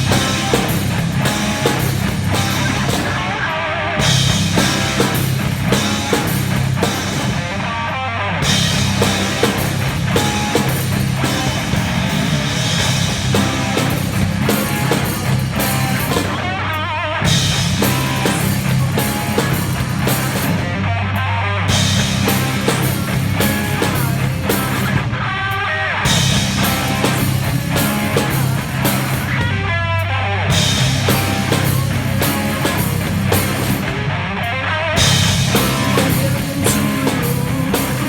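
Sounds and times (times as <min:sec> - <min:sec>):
drum kit beat: 0:00.0 - 0:20.9, 0:21.7 - 0:34.2, 0:35.0 - 0:38.0
guitar: 0:00.0 - 0:38.0.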